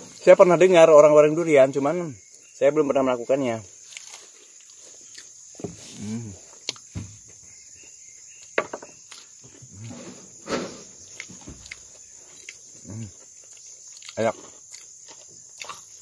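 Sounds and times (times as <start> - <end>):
man chewing crisp food: 3.8 - 5.6, 11.1 - 16.0
man humming: 5.9 - 6.5, 12.8 - 13.2.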